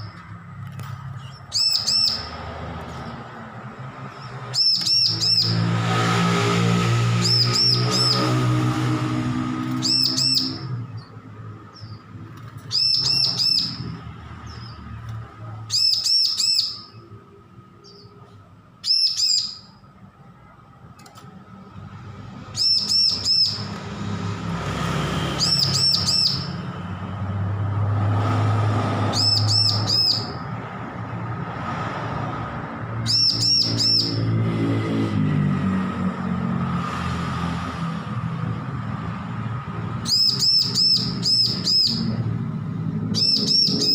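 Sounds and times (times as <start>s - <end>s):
bird song sharp high notes: 1.1s - 2.4s, 7.1s - 15.0s, 22.5s - 23.9s, 25.0s - 26.8s.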